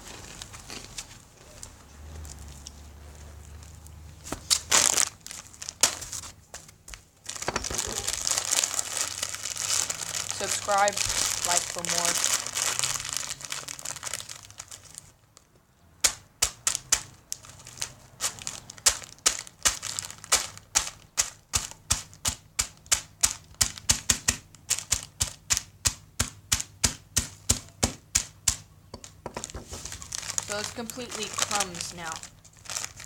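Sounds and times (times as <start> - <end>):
chip bag crinkling: 0.0 - 15.4, 16.5 - 22.2, 29.0 - 33.0
hammer crushing chips in bag: 4.4 - 6.3, 7.3 - 15.1, 16.0 - 33.0.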